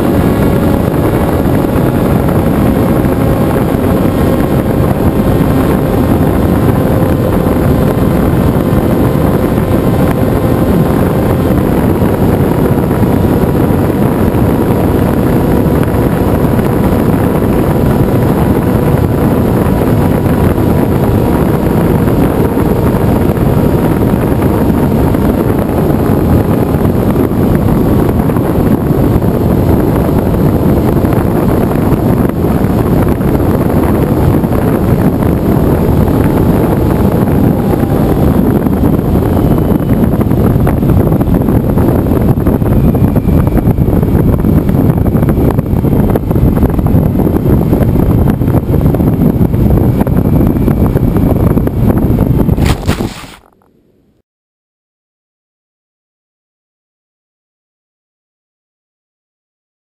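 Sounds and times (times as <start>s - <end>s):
wind buffeting microphone: 0.0s - 53.7s.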